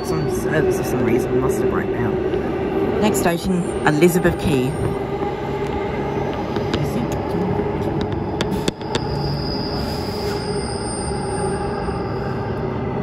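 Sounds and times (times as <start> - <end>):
faint high whine: 3.1 - 13.0.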